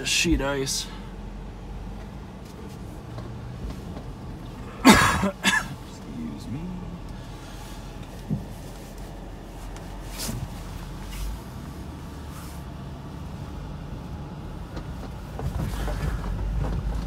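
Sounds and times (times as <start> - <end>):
car engine running: 0.0 - 17.0
knocks and thumps: 8.2 - 8.6, 14.7 - 17.0.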